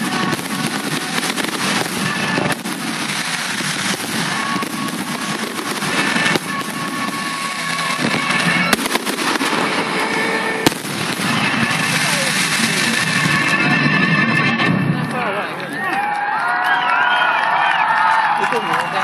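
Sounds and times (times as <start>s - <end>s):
fireworks crackling and banging: 0.0s - 19.0s
music: 7.6s - 15.8s.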